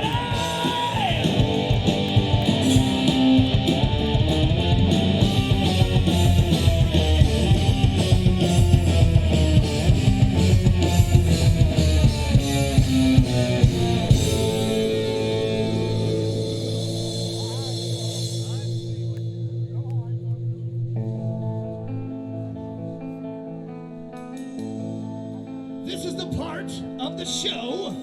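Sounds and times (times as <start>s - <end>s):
drum kit: 0.0s - 19.5s, 24.2s - 25.3s
bass guitar: 0.0s - 28.0s
electric guitars: 0.0s - 28.0s.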